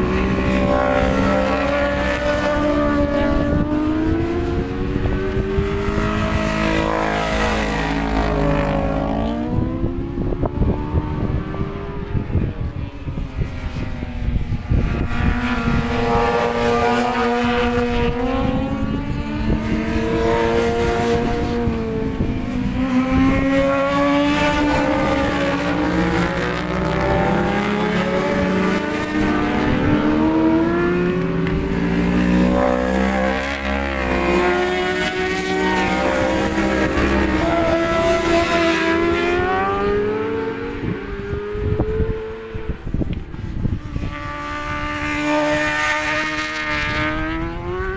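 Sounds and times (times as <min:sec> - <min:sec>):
racing motorcycle engines: 0:00.0 - 0:47.9
wind rumble on microphone: 0:00.0 - 0:47.9.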